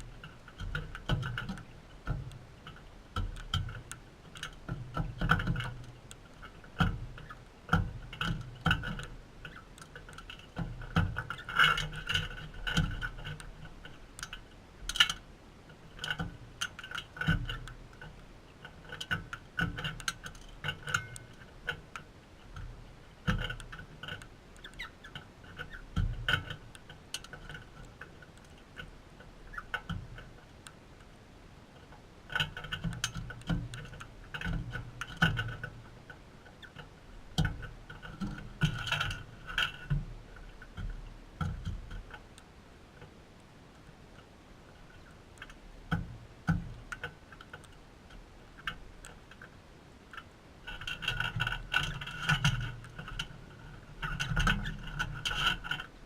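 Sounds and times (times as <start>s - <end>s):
beaks pecking and cracking seed: 19.4s - 29.9s.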